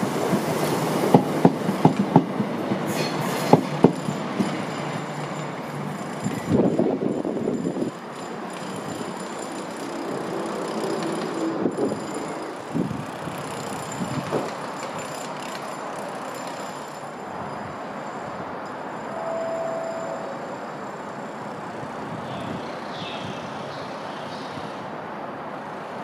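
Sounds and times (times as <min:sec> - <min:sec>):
train running noise: 0:00.0 - 0:22.8.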